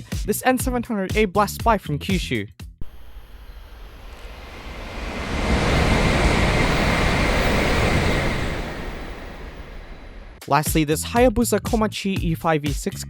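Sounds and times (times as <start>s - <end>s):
bullet train passing at high speed: 2.8s - 10.4s
high whine: 2.8s - 10.4s.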